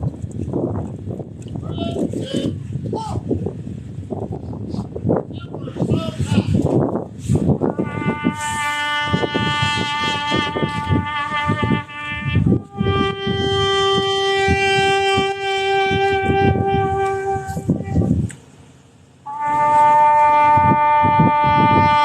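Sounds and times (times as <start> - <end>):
low rumbling: 0.0 - 22.0
wind instrument long notes: 7.2 - 18.3, 19.3 - 22.0.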